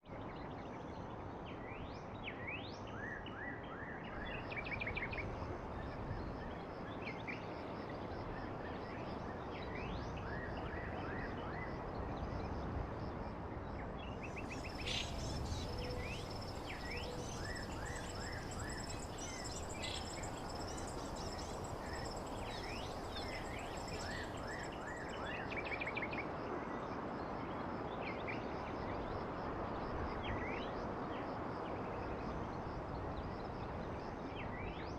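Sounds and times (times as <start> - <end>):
steady background hiss: 14.0 - 26.0
birds chirping: 14.4 - 25.1.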